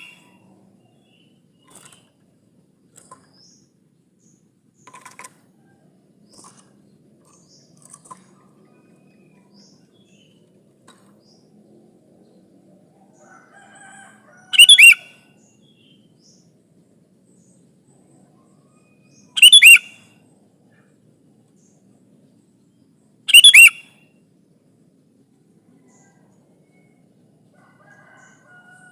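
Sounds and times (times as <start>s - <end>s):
bulbul calling: 0.0s - 0.4s, 14.5s - 15.1s, 19.1s - 20.0s, 23.3s - 24.0s.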